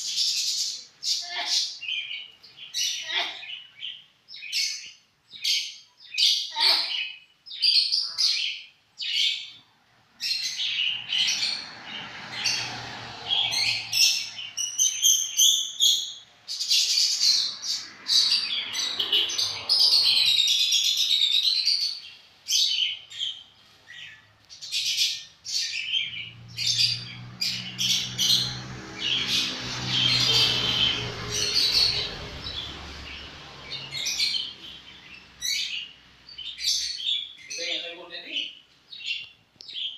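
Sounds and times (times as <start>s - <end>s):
lovebird chirping and chattering: 10.2s - 39.9s.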